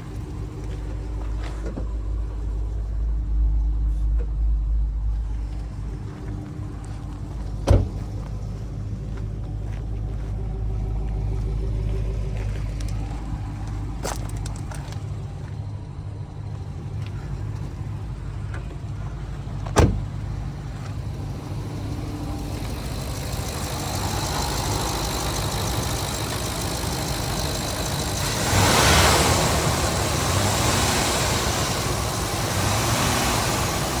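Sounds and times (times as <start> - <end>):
pickup truck engine hum: 0.0 - 34.0
broad rushing noise: 22.4 - 34.0.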